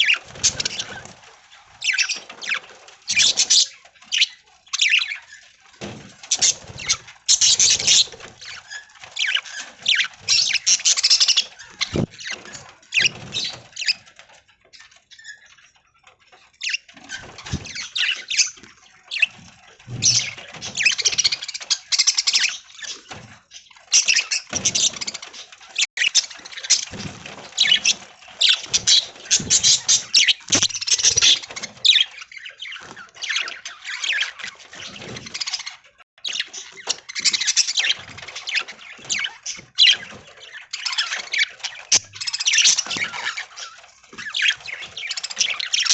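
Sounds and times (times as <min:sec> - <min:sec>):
budgerigars chattering and chirping: 0:00.0 - 0:01.2, 0:06.3 - 0:14.0, 0:16.6 - 0:45.9.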